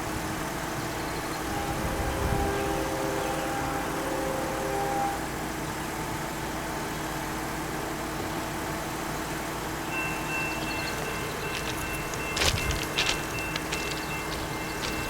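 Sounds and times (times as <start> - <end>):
locomotive engines rumbling: 0.0 - 15.0
thin high tone: 9.9 - 15.0.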